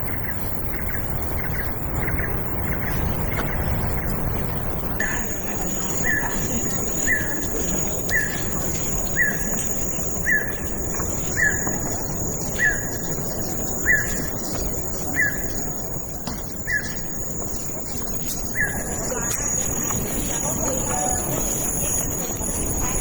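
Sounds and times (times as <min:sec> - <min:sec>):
high continuous whine: 0:00.0 - 0:23.0
bird chirping: 0:05.0 - 0:15.7, 0:16.4 - 0:23.0.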